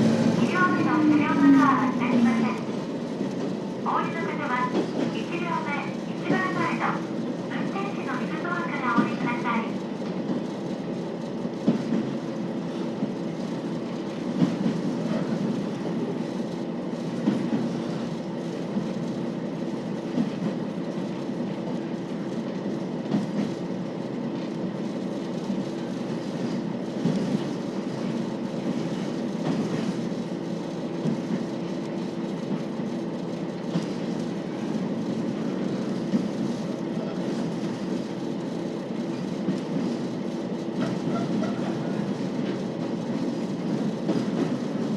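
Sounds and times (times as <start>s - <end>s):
diesel railcar engine hum: 0.0s - 44.9s
wheels clicking on rail joints: 40.7s - 44.9s.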